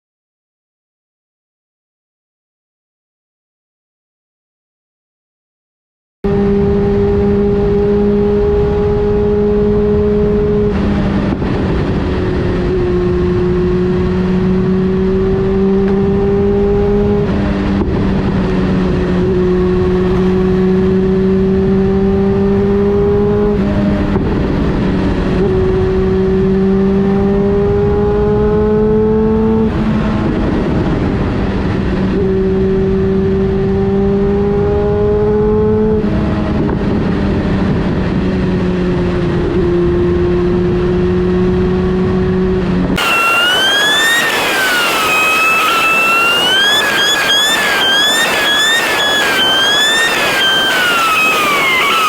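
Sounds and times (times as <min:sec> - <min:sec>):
wind and road noise: 0:06.2 - 0:52.0
motorcycle engine cruising: 0:06.3 - 0:52.0
high wavering tone: 0:43.0 - 0:52.0.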